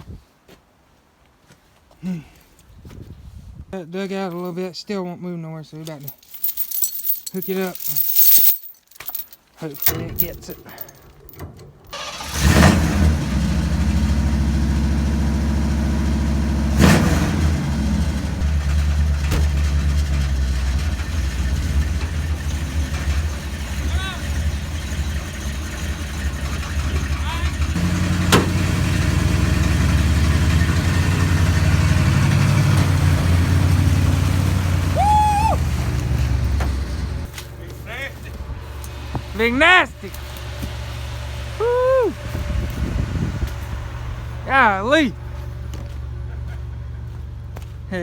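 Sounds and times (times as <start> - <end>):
truck engine revving: 12.0 - 37.3.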